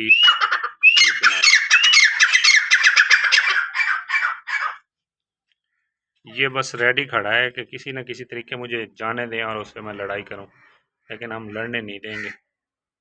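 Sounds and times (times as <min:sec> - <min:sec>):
francolin calling harsh notes: 0:00.0 - 0:02.7.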